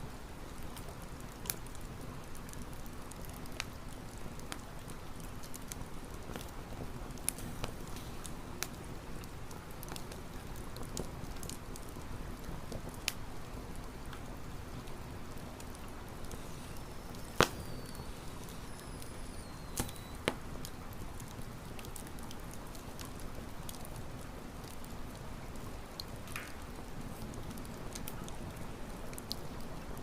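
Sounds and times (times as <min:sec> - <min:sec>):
campfire rumble: 0:00.0 - 0:30.0
wood popping: 0:16.3 - 0:20.4.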